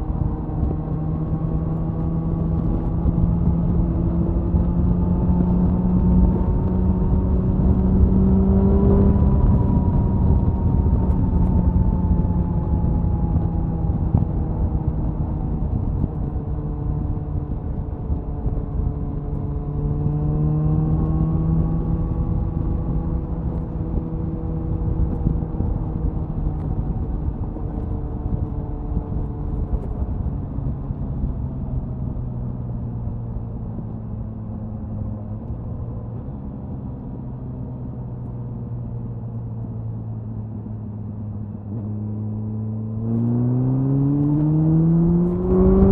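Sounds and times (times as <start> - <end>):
motorcycle exhaust under way: 0.0 - 45.9
wind rush: 43.0 - 45.9.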